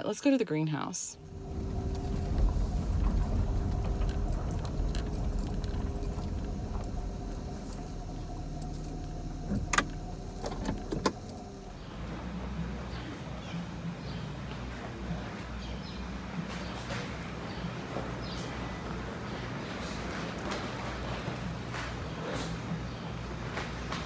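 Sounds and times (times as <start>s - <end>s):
faint steady whine: 1.0s - 15.1s
road rumble inside car: 1.1s - 20.3s.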